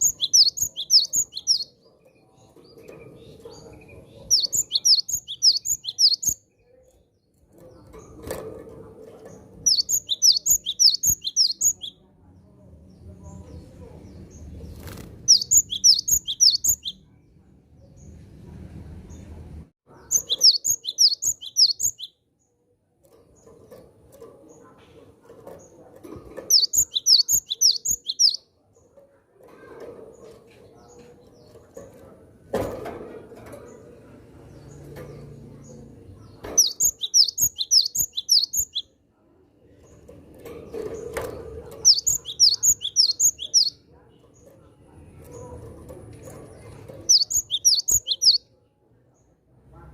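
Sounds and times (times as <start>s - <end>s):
bird singing high sharp notes: 0.0s - 1.7s, 4.3s - 6.4s, 9.7s - 12.0s, 15.3s - 17.0s, 20.1s - 22.2s, 26.5s - 28.4s, 36.6s - 38.9s, 41.9s - 43.8s, 47.1s - 48.4s.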